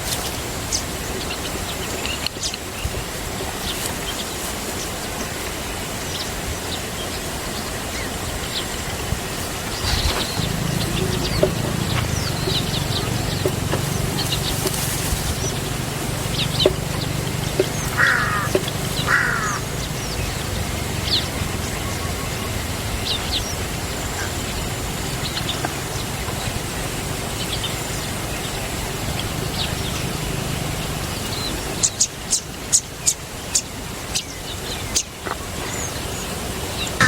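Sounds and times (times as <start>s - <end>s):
birds chirping: 0.0s - 37.0s
steady low hum: 8.9s - 31.9s
harsh raspy bird calls: 9.6s - 28.1s.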